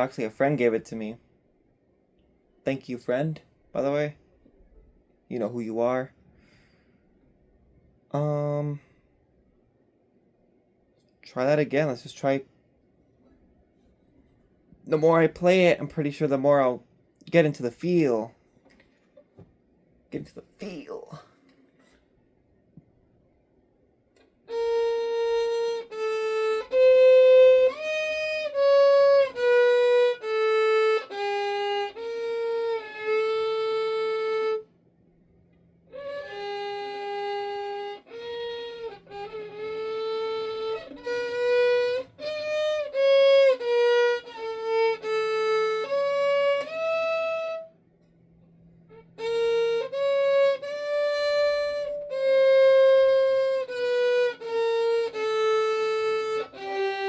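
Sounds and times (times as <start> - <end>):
solo violin melody: 24.2 - 34.8, 35.4 - 57.0.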